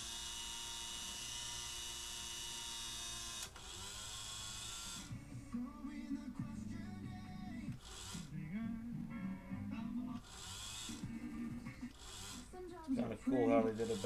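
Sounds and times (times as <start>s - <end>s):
small electric motor whining: 0.0s - 6.1s, 7.4s - 8.5s, 9.3s - 14.0s
radio audio: 11.0s - 14.0s.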